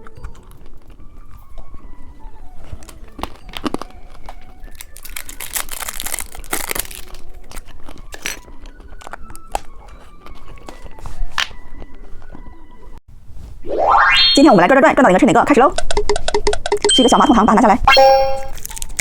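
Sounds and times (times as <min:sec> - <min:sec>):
faint background music: 0:00.0 - 0:13.4, 0:14.3 - 0:15.9, 0:16.8 - 0:19.0
candy wrappers crinkling: 0:02.6 - 0:11.6, 0:18.5 - 0:19.0
wrapper tearing: 0:02.8 - 0:08.4, 0:18.6 - 0:19.0.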